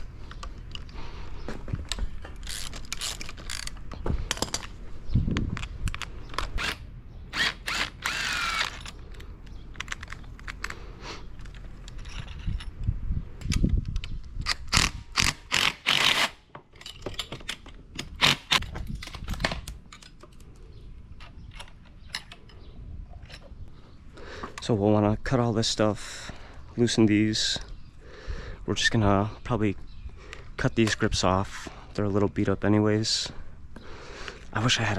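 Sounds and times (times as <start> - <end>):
metal tools clinking: 8.2 - 12.9, 16.7 - 18.2.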